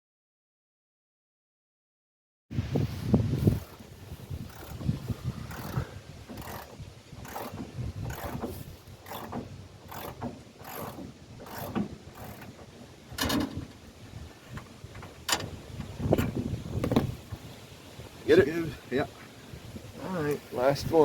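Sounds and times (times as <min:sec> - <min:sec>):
ratchet wrench clicking: 0:04.5 - 0:04.8, 0:05.5 - 0:08.4, 0:09.0 - 0:12.5.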